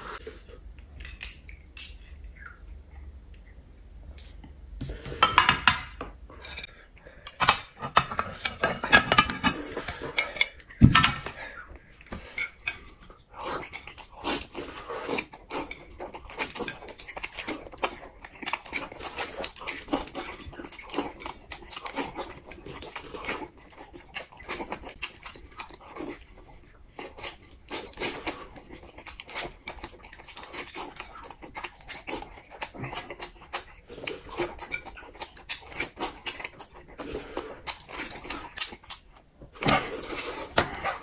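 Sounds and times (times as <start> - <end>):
people chewing and slurping: 0.0 - 41.0.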